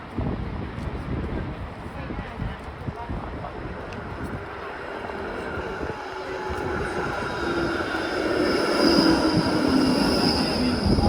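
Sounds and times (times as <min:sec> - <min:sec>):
rail vehicle rumble: 0:00.0 - 0:11.0
high whine: 0:03.0 - 0:11.0
lower tone: 0:03.5 - 0:11.0.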